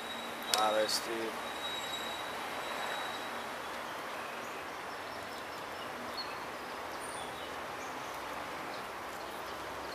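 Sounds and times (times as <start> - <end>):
outdoor background noise: 0.0 - 9.9
faint bird chirps: 1.4 - 8.2.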